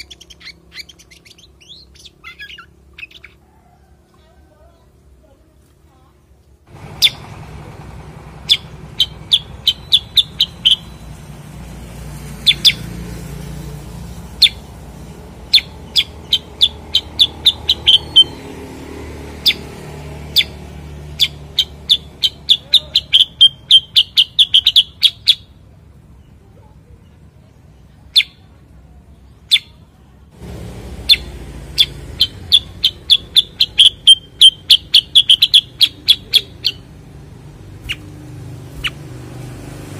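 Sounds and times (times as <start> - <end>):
bird chirping and trilling: 0.0 - 3.4, 6.9 - 7.3, 8.4 - 11.4, 12.3 - 25.6, 27.5 - 28.4, 29.3 - 29.8, 31.0 - 39.5.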